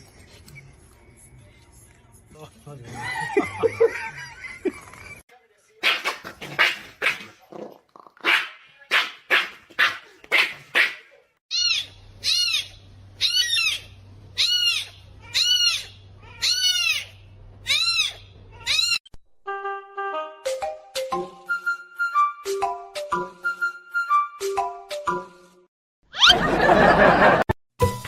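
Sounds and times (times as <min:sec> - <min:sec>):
high animal cries: 0:11.5 - 0:19.0.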